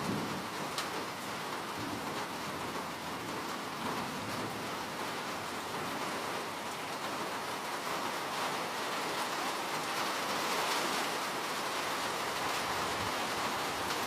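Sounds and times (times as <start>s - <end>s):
steady rain falling: 0.0s - 14.0s
raindrop taps: 0.2s - 4.0s.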